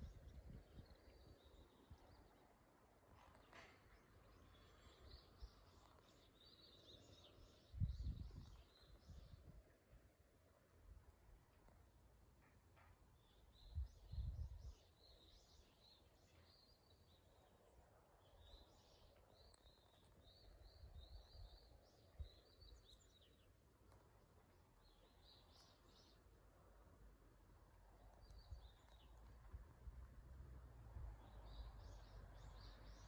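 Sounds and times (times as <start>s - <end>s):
wind buffeting microphone: 0.0s - 1.0s, 7.4s - 9.6s, 13.6s - 14.8s.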